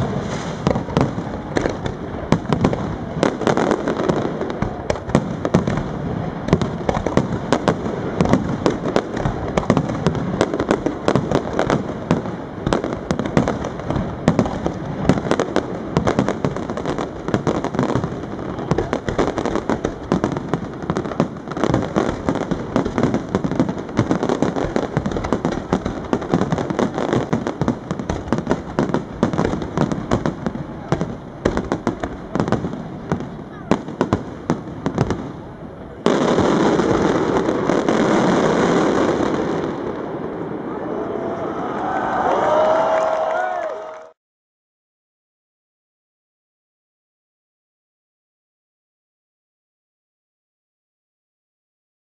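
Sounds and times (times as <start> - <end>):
fireworks bangs and crackling: 0.0 - 41.0.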